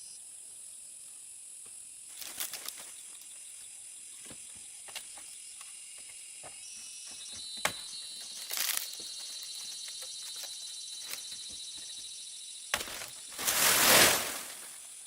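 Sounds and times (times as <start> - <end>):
insects chirring: 0.0 - 15.0
short rustle: 13.3 - 14.8.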